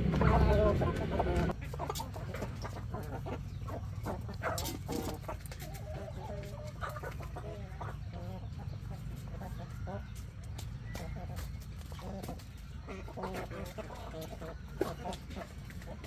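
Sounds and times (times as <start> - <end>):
loud low hum: 0.0 - 1.6
chickens clucking: 0.0 - 16.0.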